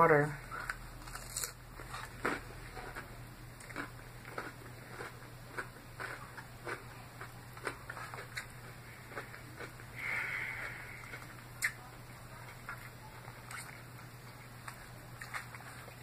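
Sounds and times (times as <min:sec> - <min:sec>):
chewing salad with soft crunching: 0:00.4 - 0:16.0
wet mouth clicks: 0:11.1 - 0:11.8.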